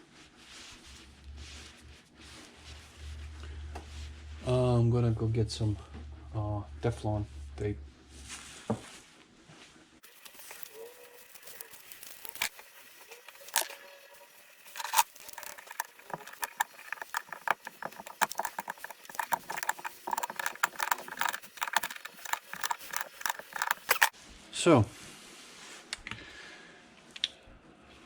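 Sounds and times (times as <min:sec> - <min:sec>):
small parts clicking and rattling: 0:10.0 - 0:24.2.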